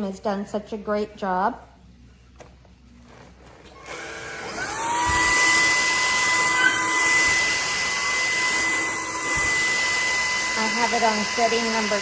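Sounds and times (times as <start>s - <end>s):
stick vacuum motor whining: 3.2s - 12.0s.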